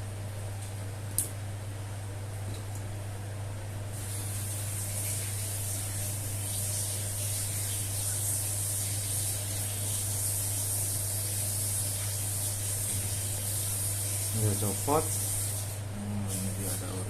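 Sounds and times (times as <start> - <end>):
low electrical hum: 0.0 - 17.0
high airy hiss: 3.9 - 17.0.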